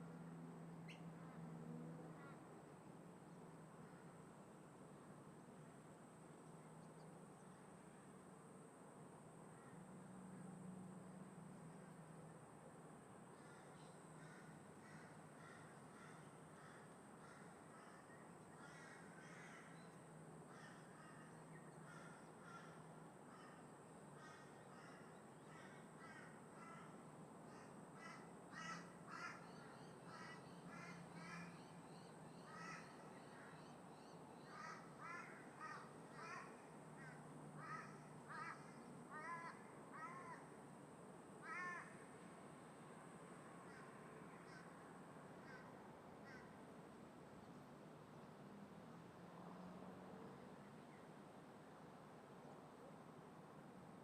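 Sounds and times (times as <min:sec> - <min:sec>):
crows cawing: 0:13.4 - 0:19.8, 0:20.5 - 0:23.6, 0:24.2 - 0:31.6, 0:32.5 - 0:33.5, 0:34.5 - 0:40.5, 0:41.4 - 0:42.0, 0:43.7 - 0:44.7, 0:45.4 - 0:46.6.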